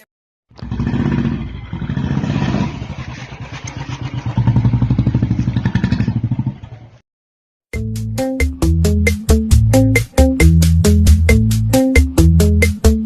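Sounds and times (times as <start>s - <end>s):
motorcycle exhaust pulsing: 0.5s - 7.0s.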